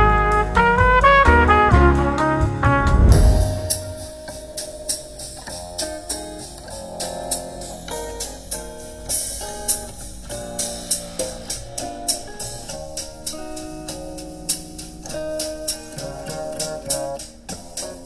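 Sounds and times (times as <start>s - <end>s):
plucked guitar: 0.0s - 18.0s
drum kit hits: 0.7s - 4.8s.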